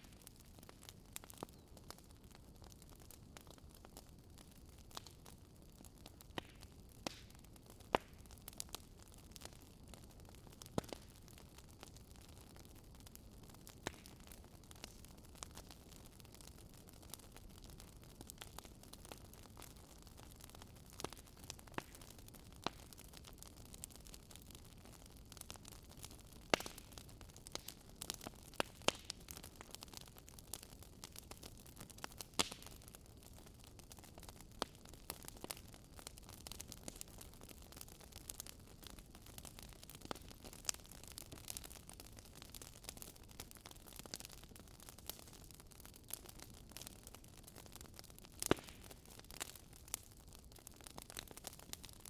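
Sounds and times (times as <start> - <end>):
campfire crackling: 0.0 - 52.0.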